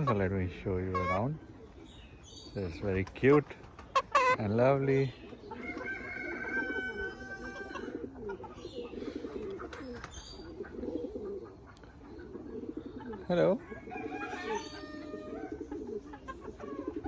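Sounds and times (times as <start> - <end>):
chicken warbling trills: 0.0 - 2.2, 3.5 - 17.0
chicken high drawn-out call: 5.6 - 8.6.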